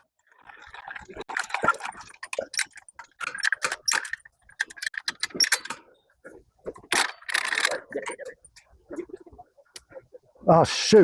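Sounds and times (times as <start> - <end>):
metal parts clicking and rattling: 2.4 - 5.9, 6.8 - 8.7.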